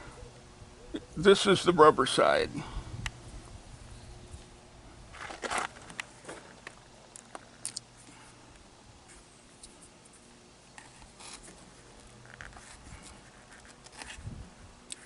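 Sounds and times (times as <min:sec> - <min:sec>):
rubber strip scraping: 0:10.8 - 0:14.3.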